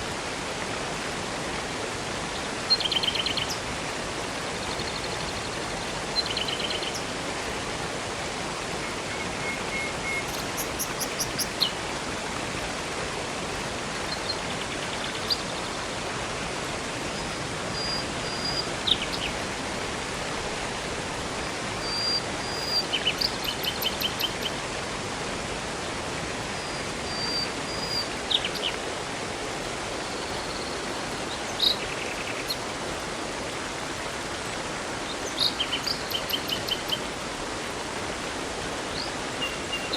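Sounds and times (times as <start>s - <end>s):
river and waterfall rushing: 0.0s - 39.9s
songbirds chirping and trilling: 8.9s - 11.8s, 38.9s - 39.9s.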